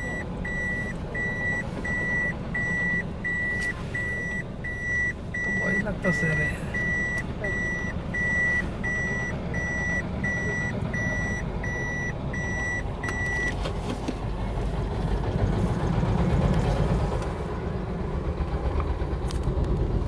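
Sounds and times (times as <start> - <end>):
reversing alarm beeping: 0.0 - 13.5
vehicle engine running: 0.0 - 20.0.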